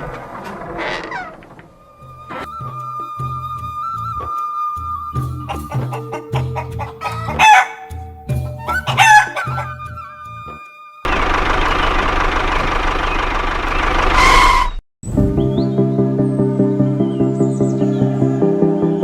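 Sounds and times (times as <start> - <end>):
background music with plucked notes: 1.8 - 11.1, 15.1 - 19.0
rooster crowing: 7.0 - 7.9, 8.6 - 9.8.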